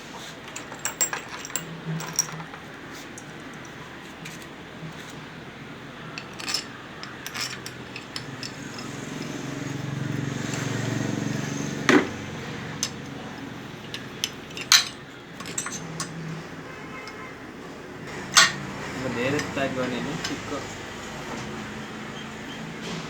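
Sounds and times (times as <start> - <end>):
metal tools clinking and knocking: 0.4 - 5.2, 6.1 - 16.4, 18.3 - 20.8.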